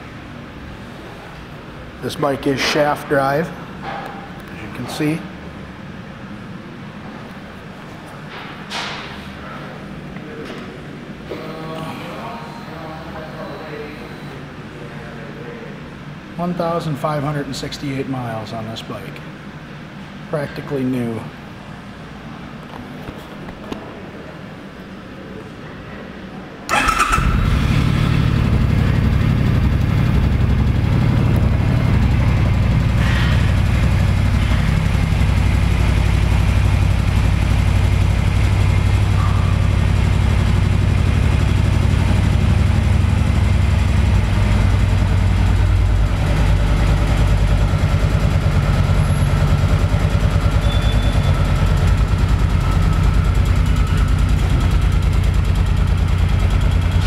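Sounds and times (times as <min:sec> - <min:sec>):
motorcycle engine idling: 0:26.7 - 0:57.0.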